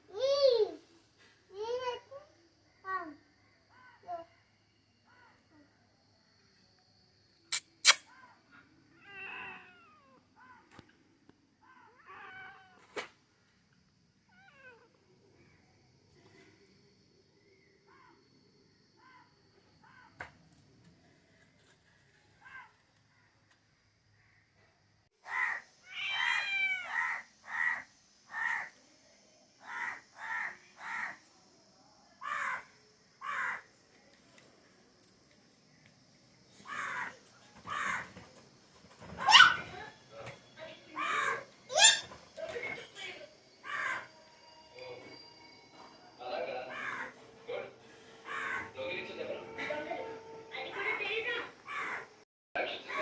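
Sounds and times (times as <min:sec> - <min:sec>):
cats meowing: 0:08.9 - 0:10.7, 0:11.7 - 0:13.0, 0:14.3 - 0:15.0, 0:25.3 - 0:27.7.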